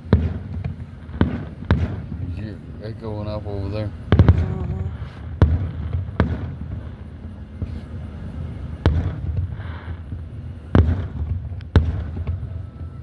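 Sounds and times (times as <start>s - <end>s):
fireworks booming: 0.0s - 13.0s
low echoing rumble: 3.9s - 7.5s.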